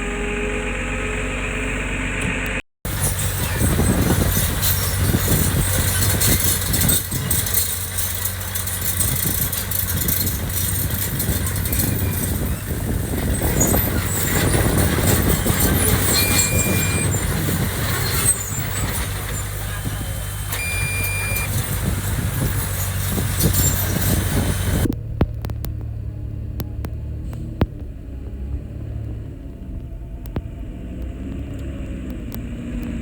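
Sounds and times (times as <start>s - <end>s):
heavy diesel engine running: 0.0s - 30.7s
clatter and scraping: 2.9s - 26.0s
short beep: 16.1s - 17.1s, 20.5s - 21.6s.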